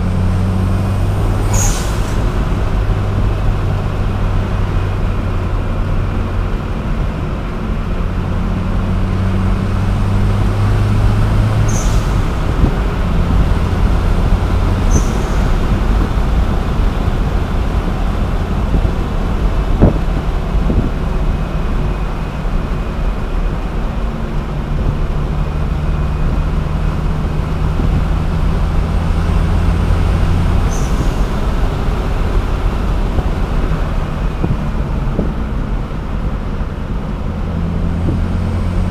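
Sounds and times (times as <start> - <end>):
car engine drone: 0.0 - 38.9
tyre and road noise: 0.0 - 38.9
short high hisses: 1.4 - 2.4, 11.7 - 12.2, 14.8 - 15.6, 30.7 - 31.3.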